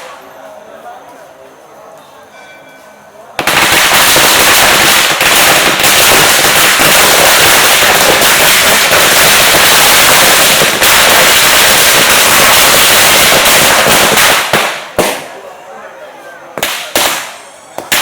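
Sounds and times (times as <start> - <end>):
firecrackers crackling: 3.4 - 15.6, 16.6 - 18.0.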